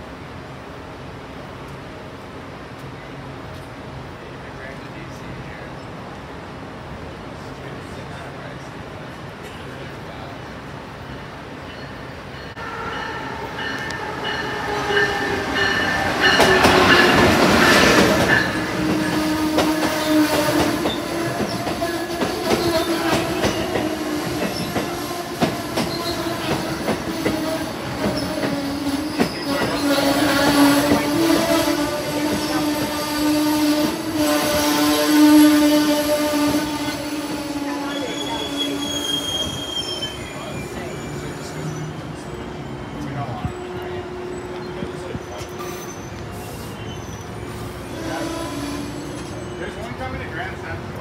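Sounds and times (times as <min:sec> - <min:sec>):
electric locomotive passing: 0:00.0 - 0:51.0
train coaches rolling past: 0:00.0 - 0:51.0
squealing wheels and brakes: 0:11.0 - 0:35.9, 0:36.5 - 0:50.6.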